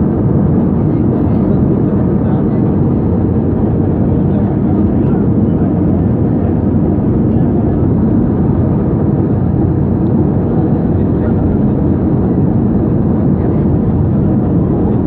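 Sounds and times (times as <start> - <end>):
jet engines heard in cabin: 0.0 - 15.0.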